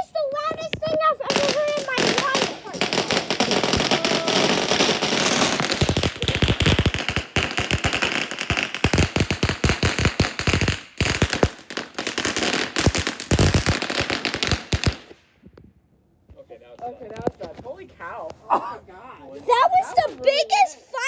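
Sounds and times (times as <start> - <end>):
firework barrage bangs and crackles: 0.4 - 15.4.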